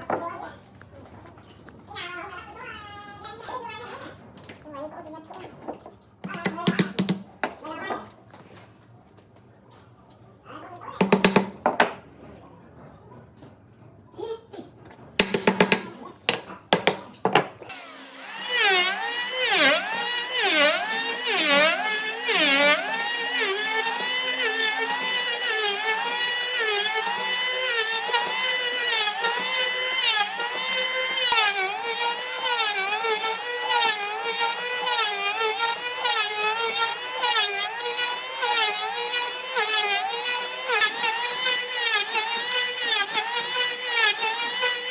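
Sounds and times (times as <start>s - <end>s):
sharp clicks and knocks: 6.2s - 7.6s
power tool motor whining: 17.6s - 44.9s.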